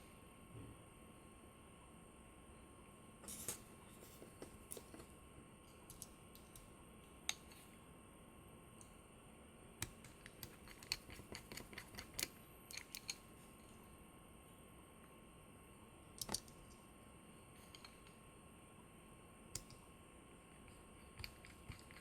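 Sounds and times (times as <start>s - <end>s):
faint high whine: 0.0s - 11.0s, 12.0s - 22.0s
small clicks and taps: 5.7s - 7.6s, 19.6s - 19.8s.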